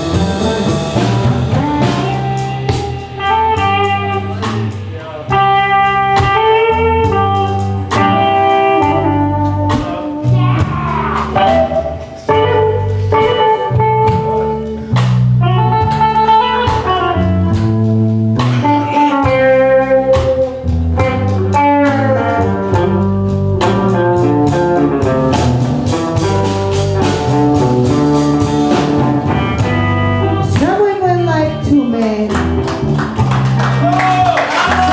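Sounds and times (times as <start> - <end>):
blues band playing: 0.0 - 34.9
lead guitar: 0.0 - 34.9.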